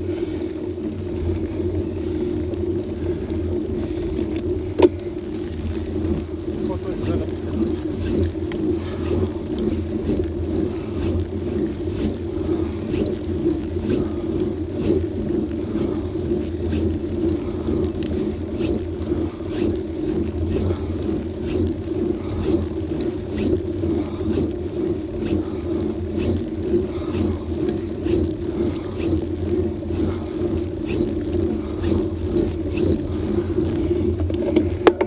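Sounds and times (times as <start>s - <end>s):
bicycle tyres rumbling on road: 0.0s - 35.0s
faint ticks: 2.4s - 6.0s.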